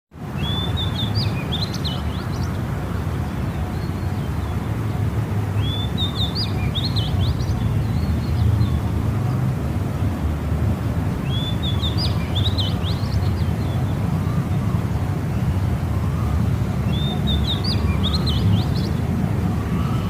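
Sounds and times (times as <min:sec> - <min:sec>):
small songbird singing: 0:00.4 - 0:02.7, 0:05.6 - 0:09.4, 0:11.2 - 0:14.6, 0:16.8 - 0:19.1.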